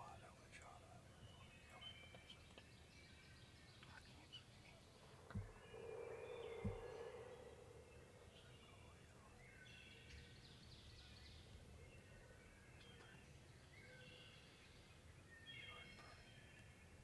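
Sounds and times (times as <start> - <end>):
faint songbirds singing: 0.0 - 17.0
low hum: 4.7 - 9.4
soft low thumps: 5.0 - 8.6.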